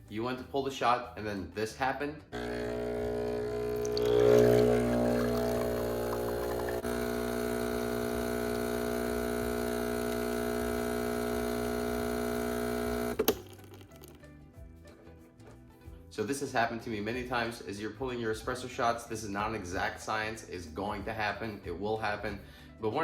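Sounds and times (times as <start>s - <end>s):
espresso machine pump buzzing: 2.4s - 13.7s.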